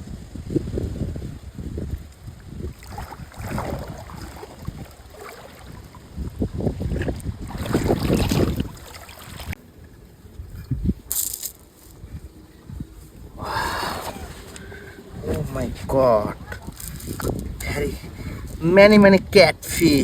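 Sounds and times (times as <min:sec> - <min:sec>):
wind rumbling on microphone: 0:00.0 - 0:20.0
water splashing and sloshing: 0:01.8 - 0:12.0, 0:14.0 - 0:17.6.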